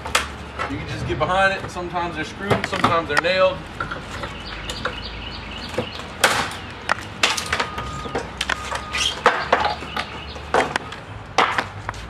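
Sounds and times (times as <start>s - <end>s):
wood cracking and creaking: 5.7s - 12.0s.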